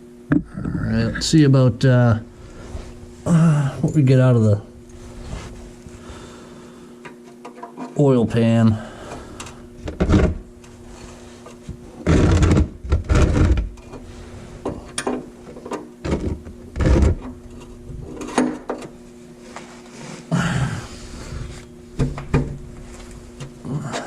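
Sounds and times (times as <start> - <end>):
steady low hum: 0.0 - 24.0
tools knocking and scraping: 14.6 - 18.9.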